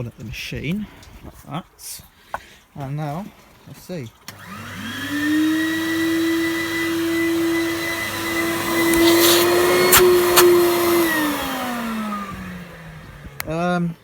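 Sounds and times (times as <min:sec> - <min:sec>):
vacuum whining: 0:04.3 - 0:13.6
vacuum motors winding down: 0:04.3 - 0:13.7.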